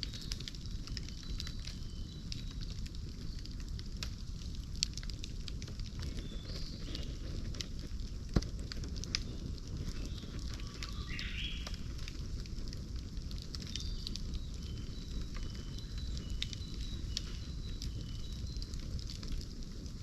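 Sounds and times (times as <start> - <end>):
bonfire crackling and popping: 0.0 - 20.0
faint high chirps: 13.8 - 18.9.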